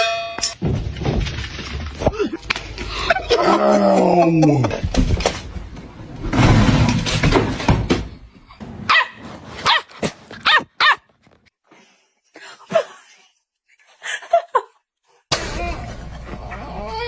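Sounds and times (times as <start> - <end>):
dog barking and whining: 8.9 - 11.1.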